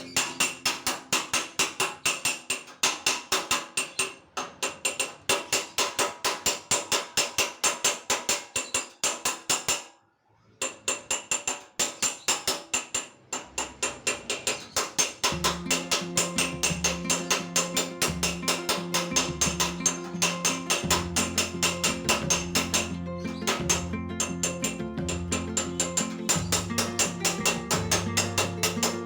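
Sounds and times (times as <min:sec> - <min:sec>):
hammer tapping on sheet metal: 0:00.0 - 0:10.0, 0:10.6 - 0:29.0.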